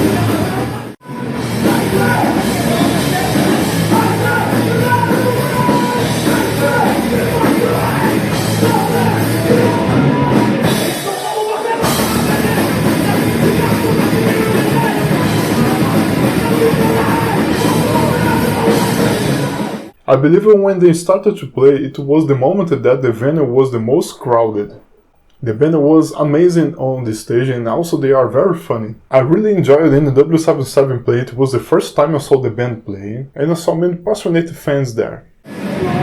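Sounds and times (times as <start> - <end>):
shouted vocals: 0.0 - 20.0, 35.5 - 36.0
drums: 0.0 - 20.4, 35.4 - 36.0
distorted guitars: 0.0 - 25.7, 35.3 - 36.0.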